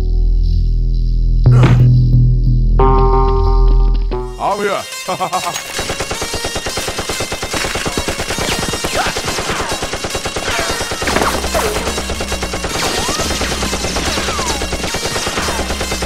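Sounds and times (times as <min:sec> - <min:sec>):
background music with low bass: 0:00.0 - 0:04.6
rapid automatic gunfire: 0:05.7 - 0:16.0.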